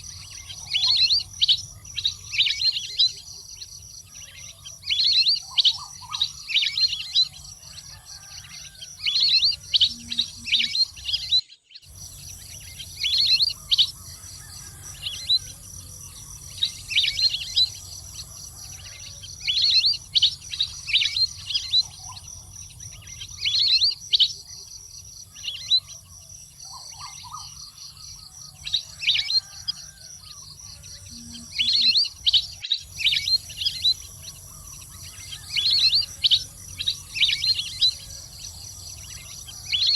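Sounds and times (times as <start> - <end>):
water bird whistled chirps: 33.0 - 34.0.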